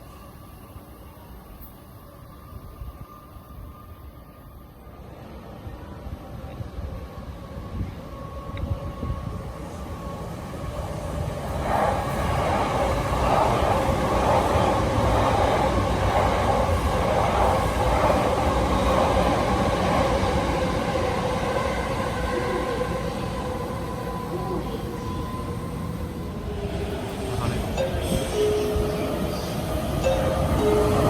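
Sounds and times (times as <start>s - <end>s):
train wheels rolling on rails: 0.0s - 31.0s.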